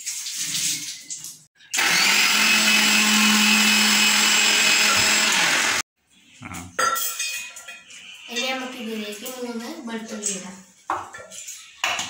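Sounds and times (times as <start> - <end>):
electric mixer grinder running: 1.8 - 5.8.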